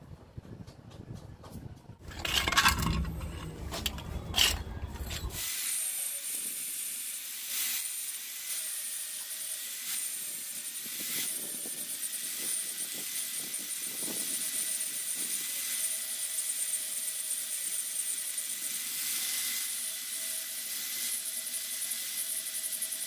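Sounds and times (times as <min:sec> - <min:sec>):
metal tool scraping: 0:02.0 - 0:06.7.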